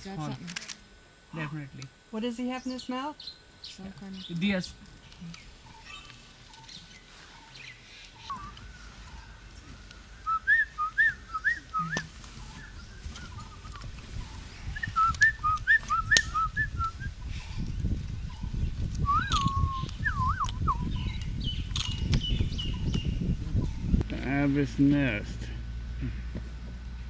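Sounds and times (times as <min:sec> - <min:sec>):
bird whistled notes: 0:08.2 - 0:08.8, 0:10.1 - 0:17.2, 0:18.3 - 0:23.1
sharp clicks: 0:15.0 - 0:16.4, 0:18.9 - 0:22.3.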